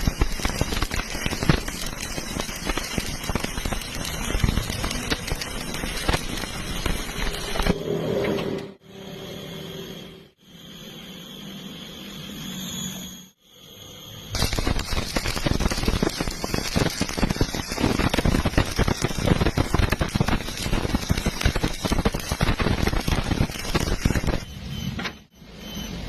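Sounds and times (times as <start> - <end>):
welding arc crackling: 0.0 - 7.8, 14.3 - 24.7.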